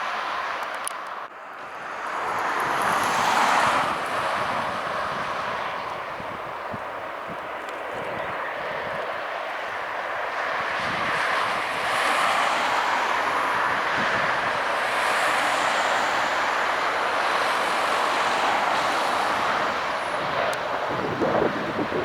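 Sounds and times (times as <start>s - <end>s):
jet engines rushing: 2.1s - 22.0s
wind buffeting microphone: 2.2s - 22.0s.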